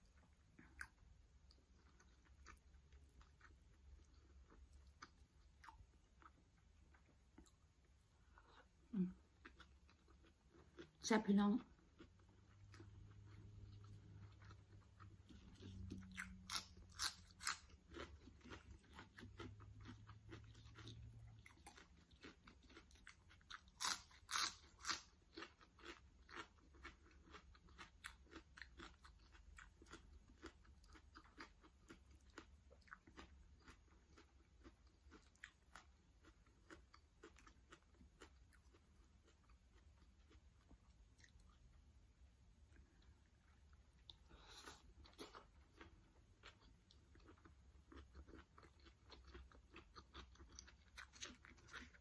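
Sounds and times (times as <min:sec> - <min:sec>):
rhythmic chewing crunches: 0:00.0 - 0:08.6, 0:09.3 - 0:52.0
biting crisp vegetables: 0:15.3 - 0:38.8.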